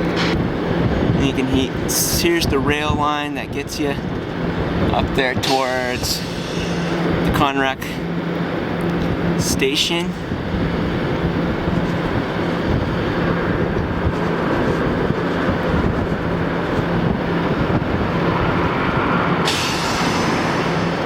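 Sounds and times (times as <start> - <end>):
vehicle running rumble: 0.0 - 21.0
low hum: 3.4 - 21.0
high hiss: 19.4 - 21.0.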